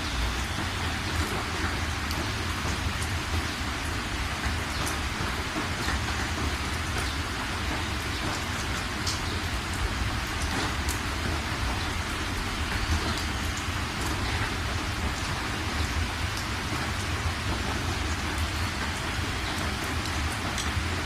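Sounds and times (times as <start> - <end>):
heavy rain hissing: 0.0 - 21.0.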